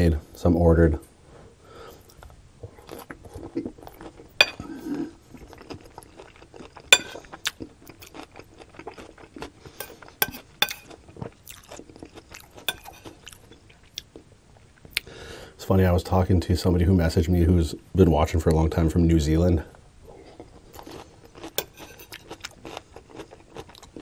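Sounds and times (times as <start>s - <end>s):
chewing and crunching food: 1.9s - 15.1s, 20.1s - 24.0s
metal spoon clinking on plate: 6.9s - 7.2s, 9.8s - 10.9s, 12.7s - 13.1s.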